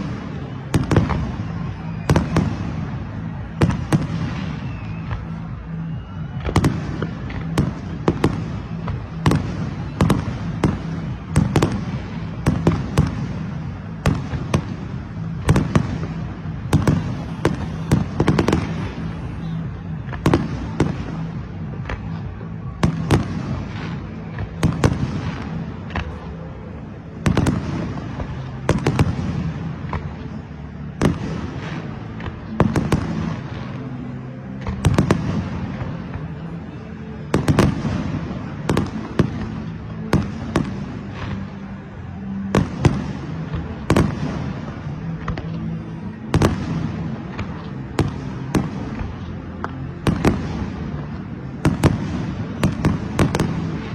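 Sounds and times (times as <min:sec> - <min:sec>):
fireworks bangs: 0:00.0 - 0:05.4, 0:06.3 - 0:26.3, 0:46.3 - 0:53.9
low rumble: 0:16.3 - 0:21.6.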